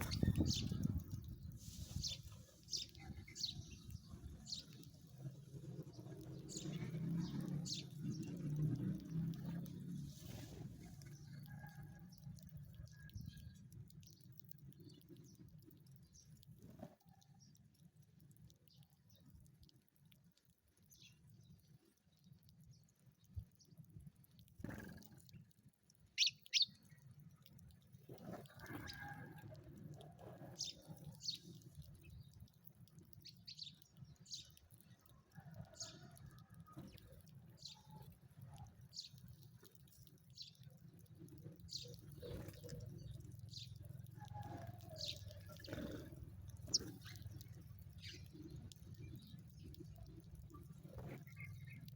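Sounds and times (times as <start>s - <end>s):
faint sparrow chirps: 0.0s - 8.8s, 24.6s - 27.4s, 30.0s - 51.9s
small clicks: 2.7s - 51.9s.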